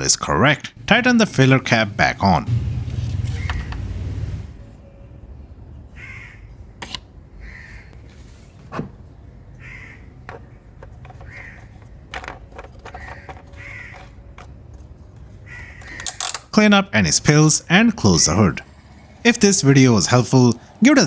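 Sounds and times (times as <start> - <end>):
bird cawing: 3.3 - 3.8, 6.0 - 6.5, 7.4 - 8.0, 9.6 - 10.1, 11.2 - 11.7, 13.0 - 14.1, 15.4 - 16.0.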